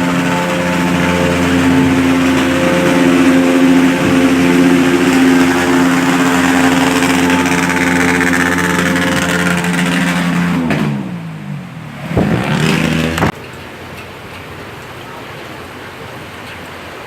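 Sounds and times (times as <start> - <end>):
heavy rain hissing: 0.0 - 10.6
vehicle engine revving: 0.0 - 13.4.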